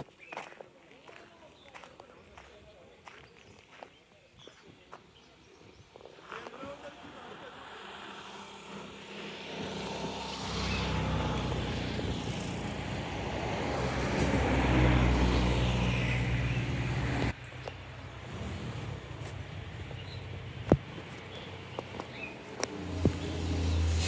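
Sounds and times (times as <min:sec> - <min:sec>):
vehicle engine approaching: 0:06.8 - 0:24.0.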